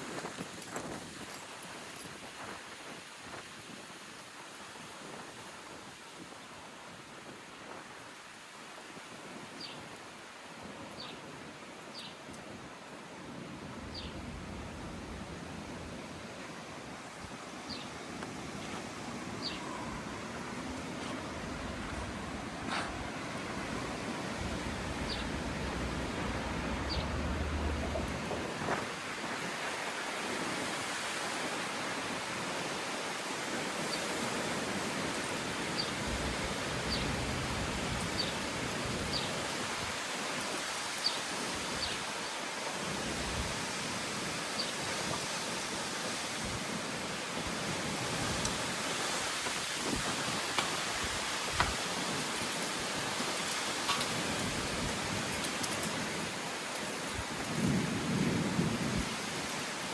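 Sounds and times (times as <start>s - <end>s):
wind buffeting microphone: 13.5s - 29.7s, 34.8s - 40.0s, 47.4s - 59.8s.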